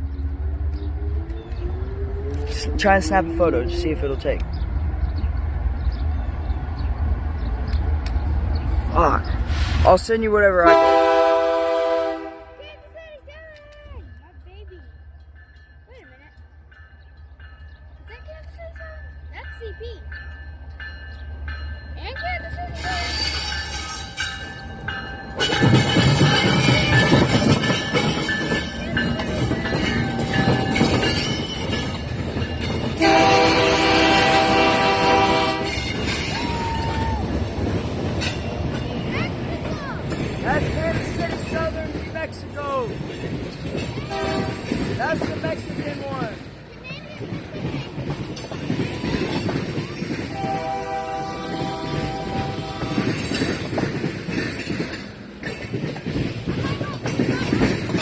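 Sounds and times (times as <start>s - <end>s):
freight train wheels on rails: 0.0s - 58.0s
train horn: 10.6s - 12.6s, 33.0s - 36.1s, 44.1s - 44.7s, 50.3s - 53.3s.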